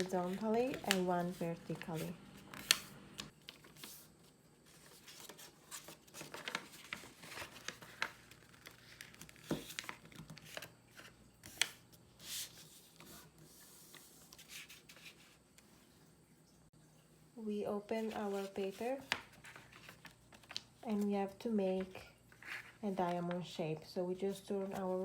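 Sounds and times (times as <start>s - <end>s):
paper being folded and creased: 0.0s - 4.1s, 4.7s - 15.4s, 18.0s - 21.0s.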